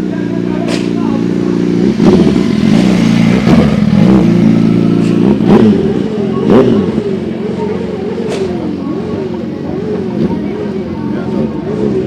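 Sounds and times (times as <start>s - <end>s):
vehicle engine revving loudly: 0.0s - 8.4s.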